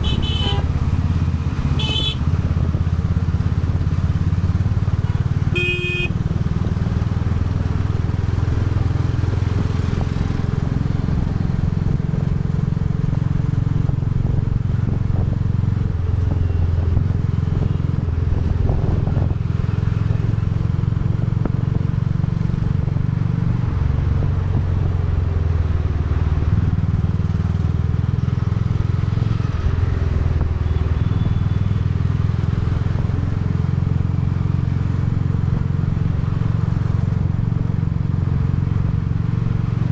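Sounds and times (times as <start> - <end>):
short horn beep: 0.0 - 0.7, 1.8 - 2.2, 5.0 - 6.2, 30.6 - 31.8
motorcycle engine running: 0.0 - 22.9.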